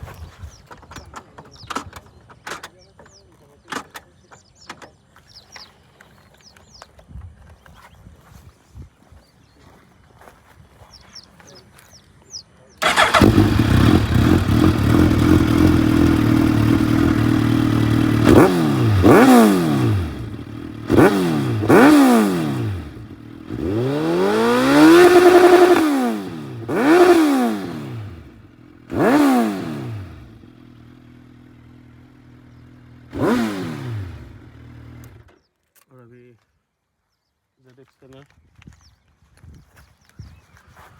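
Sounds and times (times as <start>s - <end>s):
motorcycle engine idling and revving: 0.0s - 6.9s, 12.8s - 35.5s.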